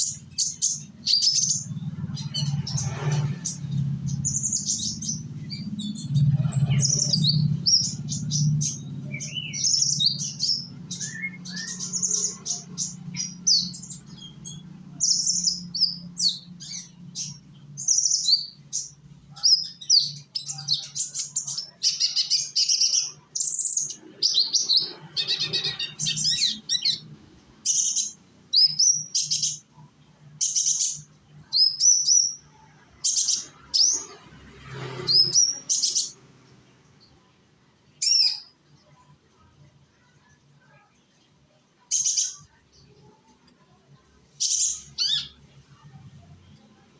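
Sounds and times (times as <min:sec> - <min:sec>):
sunbird singing high chirps: 0:00.0 - 0:34.2, 0:38.0 - 0:39.1, 0:44.3 - 0:45.9.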